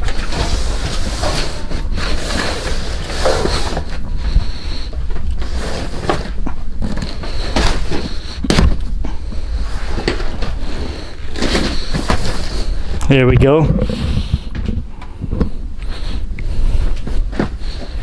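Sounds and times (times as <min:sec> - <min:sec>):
microphone handling rumble: 0:12.5 - 0:15.8.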